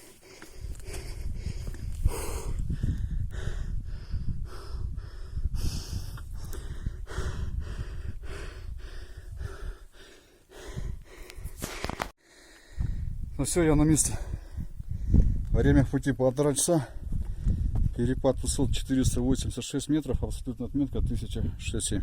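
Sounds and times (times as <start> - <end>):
man breathing hard: 0.0 - 13.3, 14.1 - 15.4
wind rumble on microphone: 0.5 - 11.8, 12.6 - 22.0.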